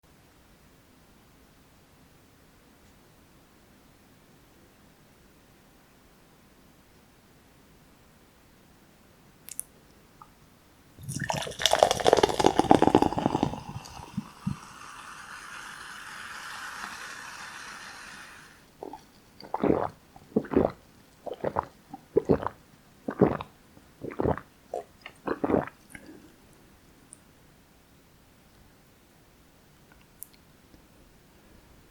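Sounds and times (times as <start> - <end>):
wet noodle eating sounds: 11.0 - 14.6, 18.8 - 26.4
squishy crackling burst: 18.8 - 26.2.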